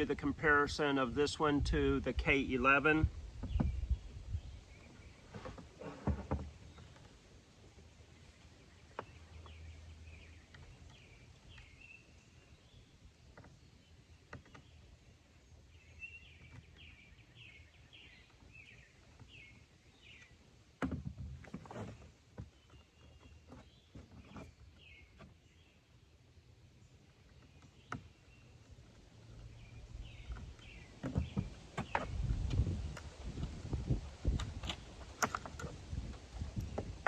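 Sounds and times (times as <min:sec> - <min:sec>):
bird chirping: 0:08.0 - 0:20.5, 0:22.0 - 0:32.4.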